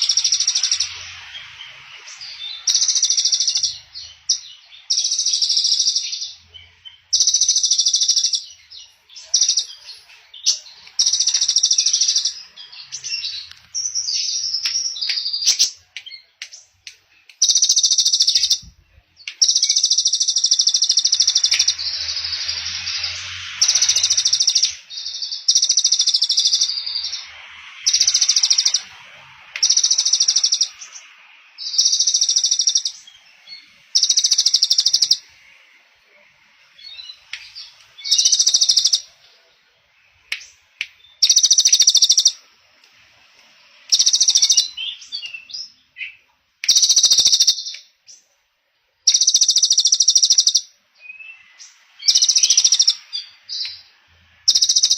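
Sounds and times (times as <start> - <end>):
songbird high rapid trill: 0.0 - 6.4, 17.4 - 18.7, 19.4 - 29.0, 29.6 - 31.0, 31.6 - 33.2, 33.9 - 35.3, 37.6 - 39.2, 41.2 - 42.5, 43.9 - 45.4, 46.6 - 47.7, 49.1 - 53.8, 54.4 - 54.9
short bird chirps: 17.4 - 29.0, 29.6 - 39.2, 43.4 - 48.3, 49.1 - 54.9.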